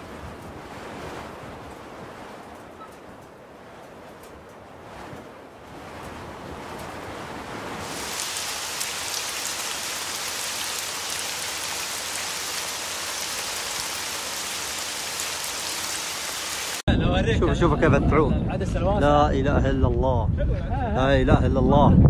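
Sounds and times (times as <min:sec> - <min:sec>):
steady rain: 0:00.0 - 0:16.9.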